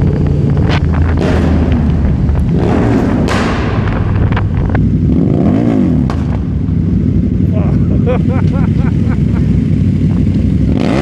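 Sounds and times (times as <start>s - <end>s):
engine pops and thumps: 0.0s - 5.2s, 6.0s - 6.8s
motorcycle engines rumbling: 0.0s - 11.0s.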